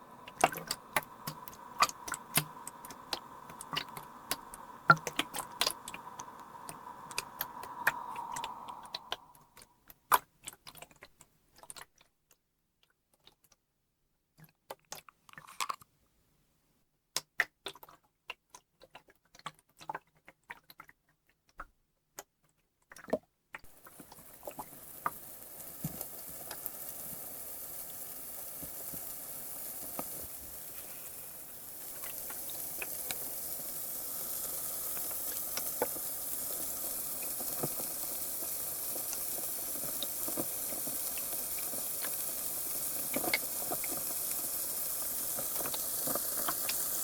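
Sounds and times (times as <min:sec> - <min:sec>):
carbonated water fizzing: 0:00.0 - 0:10.3, 0:23.6 - 0:47.0.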